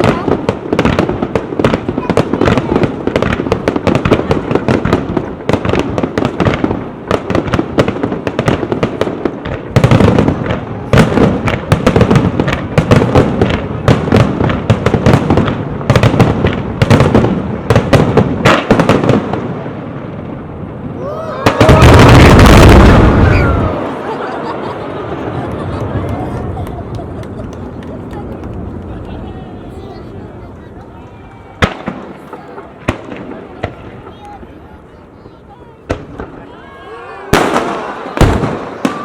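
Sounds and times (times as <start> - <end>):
loud deep firework boom: 0.0 - 28.9, 37.3 - 39.0
fireworks crackling and popping: 0.0 - 39.0.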